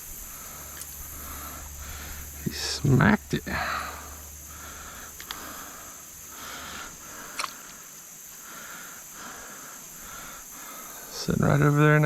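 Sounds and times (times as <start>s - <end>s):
insect chorus: 0.0s - 12.0s
sharp click: 7.3s - 7.6s.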